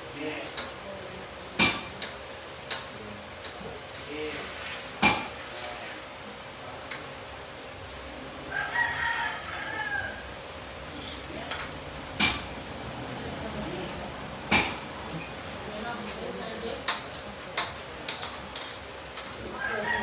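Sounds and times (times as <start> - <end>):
rooster crowing: 8.4 - 10.4, 19.4 - 20.0.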